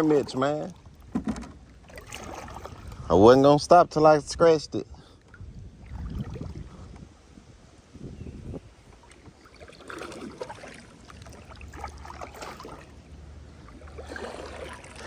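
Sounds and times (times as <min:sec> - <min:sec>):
water sloshing and splashing: 0:00.0 - 0:03.2, 0:05.0 - 0:07.1, 0:08.4 - 0:15.0
knocks against kayak: 0:01.1 - 0:01.6
wind rumble on microphone: 0:02.1 - 0:11.0.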